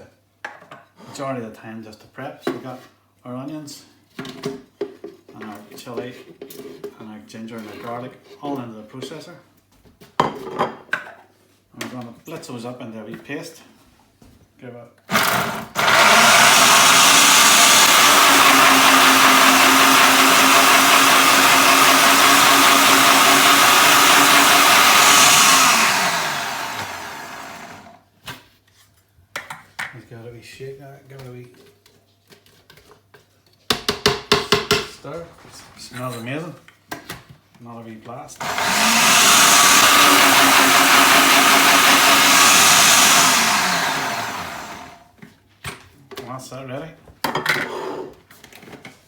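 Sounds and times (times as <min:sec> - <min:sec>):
food processor motor running: 0:15.1 - 0:28.0, 0:38.4 - 0:45.0.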